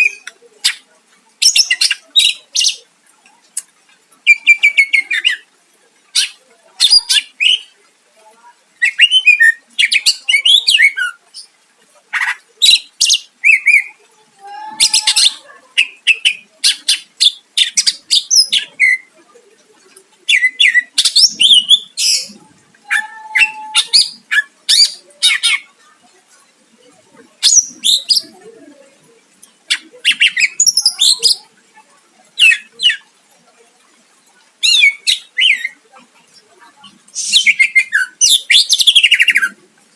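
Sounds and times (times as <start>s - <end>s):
bird singing chirps and whistles: 37.2s - 39.6s.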